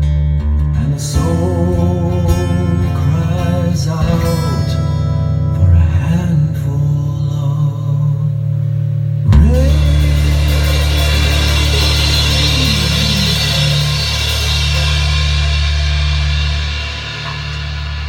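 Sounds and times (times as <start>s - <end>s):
heavy metal band playing: 9.3s - 18.0s.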